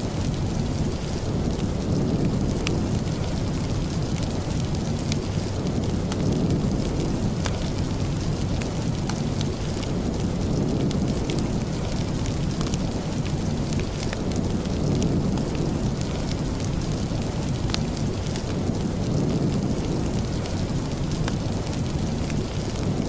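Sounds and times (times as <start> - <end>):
steady rain: 0.0 - 23.0
wood fire crackling: 0.0 - 23.0.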